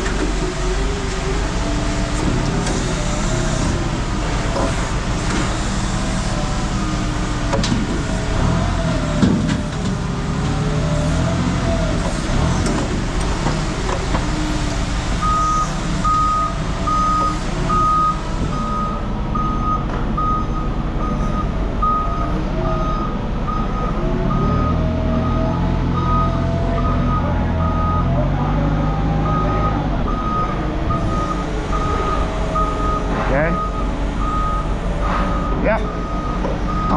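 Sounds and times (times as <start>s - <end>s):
reversing alarm beeping: 15.2s - 36.9s
vehicle engine running: 25.3s - 36.9s.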